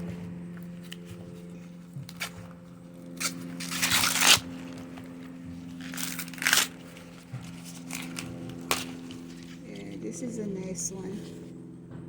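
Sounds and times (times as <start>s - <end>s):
corn husk tearing: 3.2s - 10.0s.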